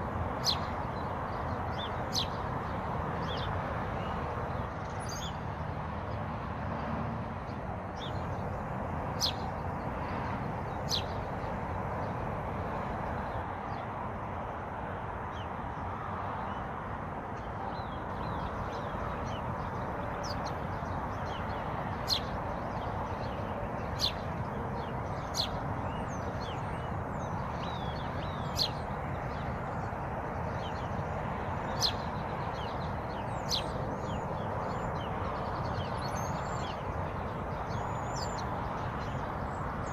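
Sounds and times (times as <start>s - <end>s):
birds chirping: 0.4s - 5.5s, 7.5s - 9.9s, 10.7s - 12.2s, 17.4s - 39.9s.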